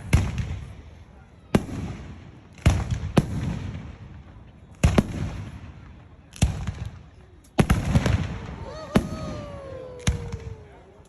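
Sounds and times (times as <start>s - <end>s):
fireworks bangs: 7.6s - 11.0s.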